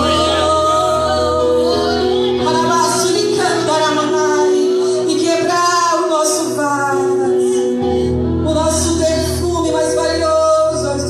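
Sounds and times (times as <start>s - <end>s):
voices singing a hymn: 0.0s - 3.8s.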